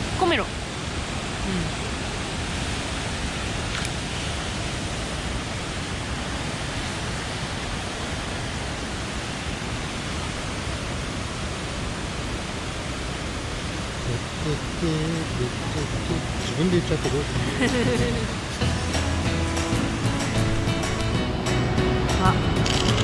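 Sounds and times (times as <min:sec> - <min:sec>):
mountain stream rushing: 0:00.0 - 0:23.0.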